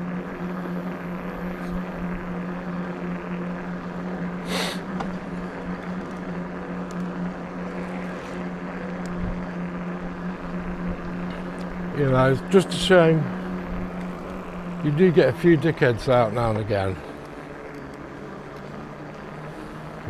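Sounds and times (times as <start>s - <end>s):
electric bike motor humming: 0.0s - 20.0s
rolling and air noise: 0.0s - 20.0s
brief hiss: 4.5s - 4.8s.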